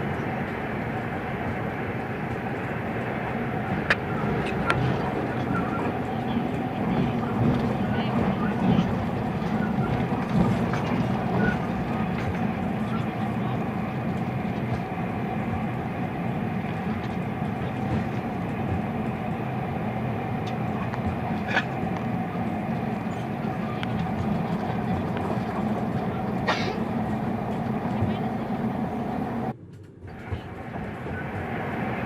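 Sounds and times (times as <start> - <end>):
train carriage rumbling: 0.0 - 32.0.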